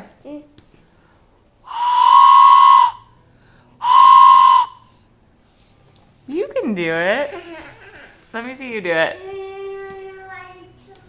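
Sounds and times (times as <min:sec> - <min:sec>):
toy whistle blasts: 0:01.7 - 0:03.1, 0:03.8 - 0:04.9.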